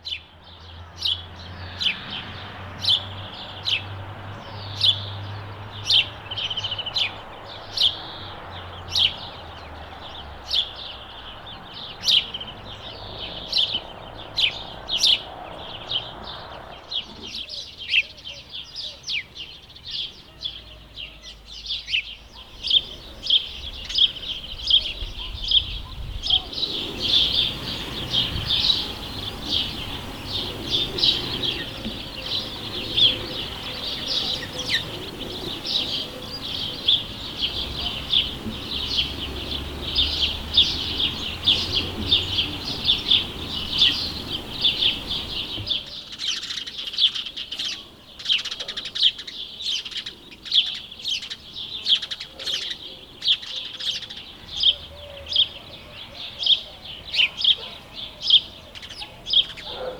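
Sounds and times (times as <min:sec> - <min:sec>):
sparrows chirping: 0:00.0 - 0:59.9.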